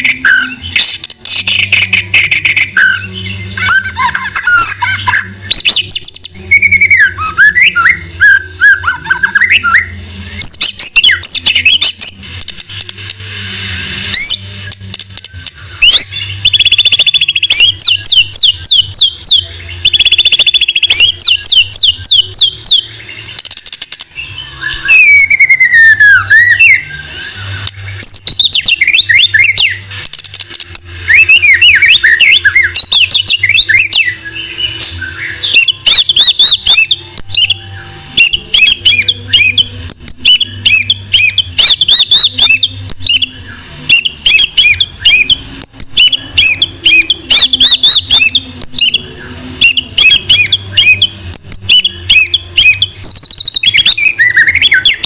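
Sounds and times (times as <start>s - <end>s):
bird singing trills and whistles: 0.0s - 55.0s.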